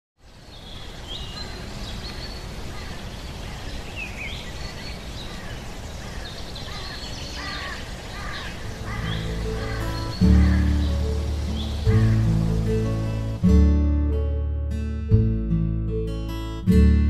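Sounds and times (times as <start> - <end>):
small birds chirping: 0.2 - 13.5
lower bird calls: 0.4 - 13.3.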